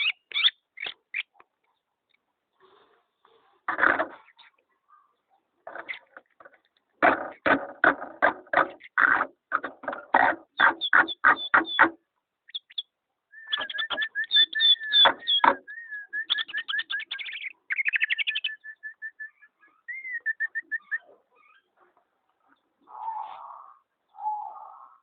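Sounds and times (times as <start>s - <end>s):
pet bird singing: 0.0s - 1.4s, 10.5s - 21.8s.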